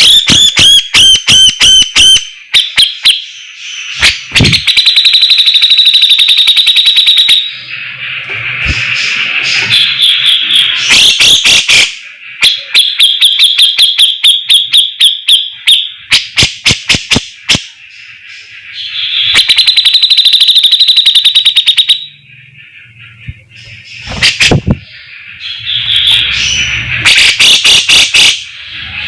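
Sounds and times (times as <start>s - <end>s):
bird chirping and trilling: 0.0s - 29.0s.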